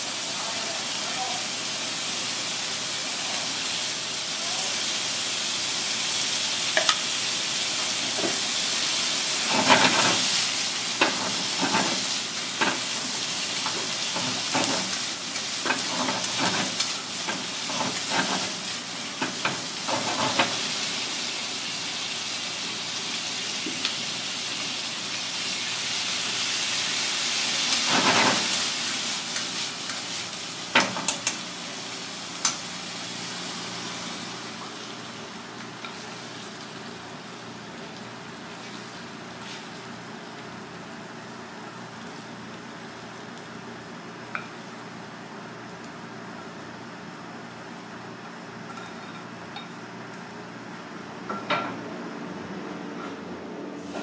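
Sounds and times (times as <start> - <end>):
food sizzling in a wok: 0.0 - 52.2, 53.8 - 54.0
chopsticks clicking against pan: 32.4 - 32.6.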